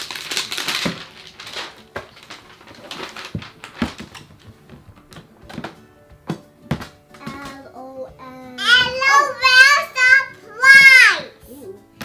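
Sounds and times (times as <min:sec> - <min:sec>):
packaging rustling and crinkling: 0:00.0 - 0:05.8
taps and knocks: 0:03.3 - 0:07.6.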